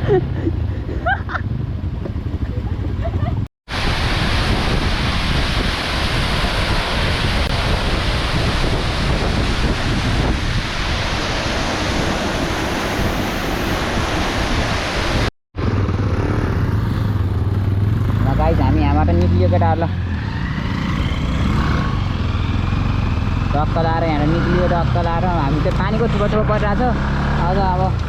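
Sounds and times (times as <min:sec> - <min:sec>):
motorcycle engine humming: 0:00.0 - 0:03.5, 0:15.6 - 0:28.0
waterfall rushing: 0:03.7 - 0:15.3.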